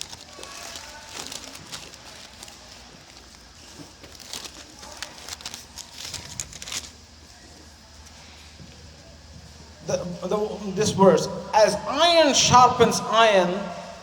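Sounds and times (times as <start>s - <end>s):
paper pages turning: 0.0s - 7.0s
paper crinkling: 0.0s - 8.3s.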